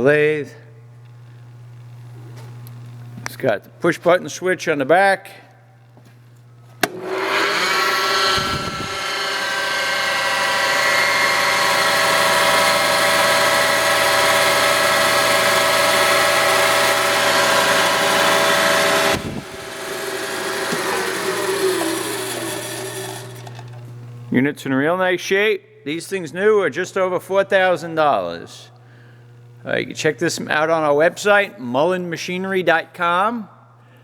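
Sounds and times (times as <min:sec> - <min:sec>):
grinder motor whining: 0:05.9 - 0:24.4.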